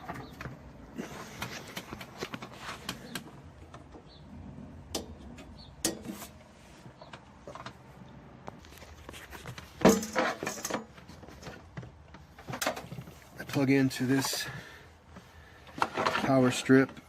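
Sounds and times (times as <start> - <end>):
objects clicking and knocking: 8.5 - 13.1.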